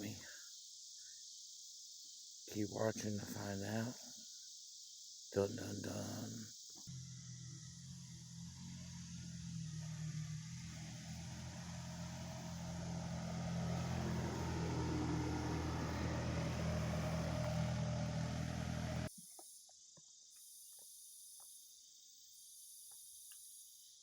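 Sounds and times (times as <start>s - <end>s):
insects chirping: 0.0s - 24.0s
low droning hum: 6.9s - 19.1s.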